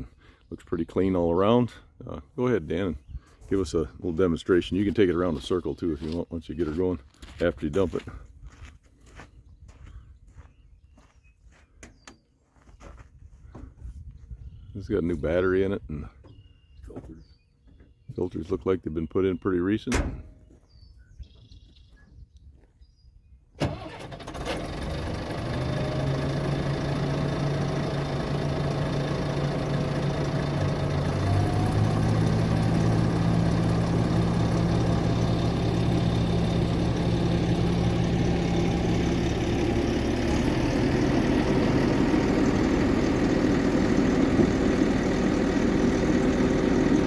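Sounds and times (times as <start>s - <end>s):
diesel engine starting and running: 23.6s - 47.0s.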